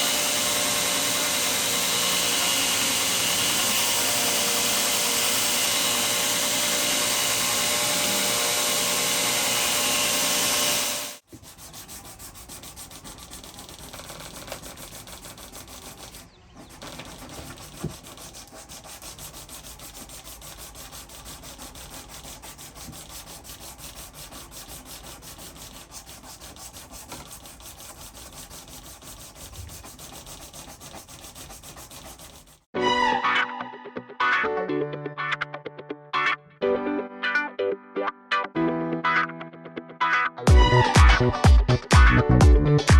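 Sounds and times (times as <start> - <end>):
power tool running: 0.0 - 11.2
hand-sanding strokes: 0.0 - 32.7.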